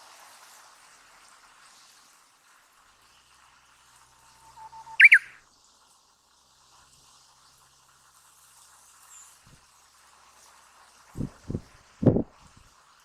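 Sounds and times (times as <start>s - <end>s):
low outdoor hiss: 0.0s - 13.0s
wind buffeting microphone: 11.2s - 12.6s.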